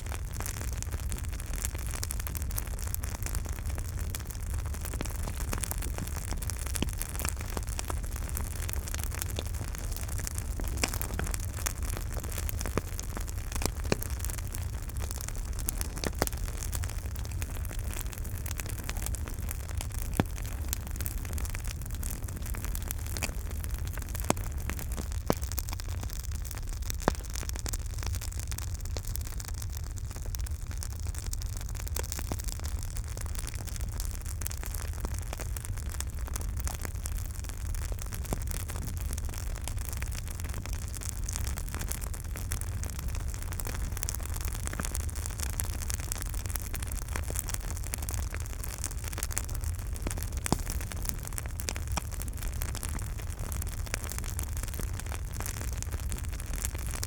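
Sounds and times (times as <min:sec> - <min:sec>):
burning wood crackling: 0:00.0 - 0:57.0
flames rushing: 0:00.3 - 0:25.8, 0:37.5 - 0:57.0.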